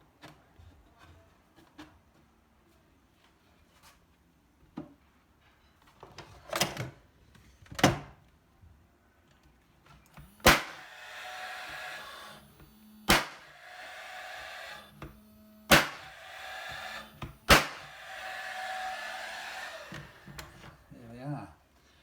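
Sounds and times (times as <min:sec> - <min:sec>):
nail gun shots: 0:10.4 - 0:12.4, 0:13.0 - 0:18.3.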